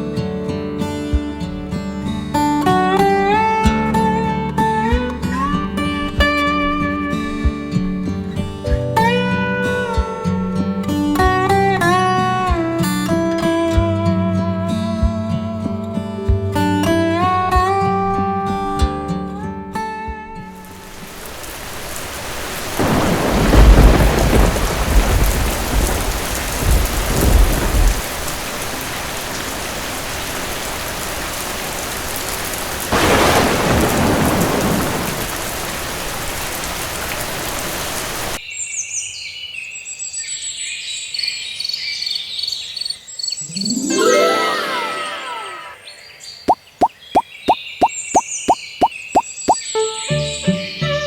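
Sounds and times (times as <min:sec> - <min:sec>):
heavy rain: 0:20.6 - 0:38.4
thunder rolling: 0:22.8 - 0:28.5, 0:32.9 - 0:36.8.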